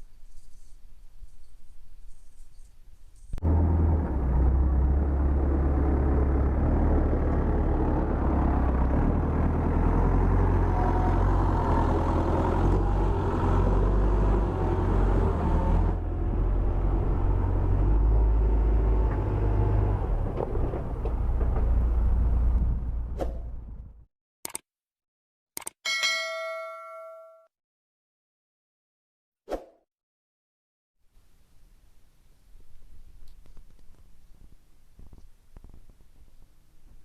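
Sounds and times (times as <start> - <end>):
motor vehicle rumbling: 3.2 - 24.1.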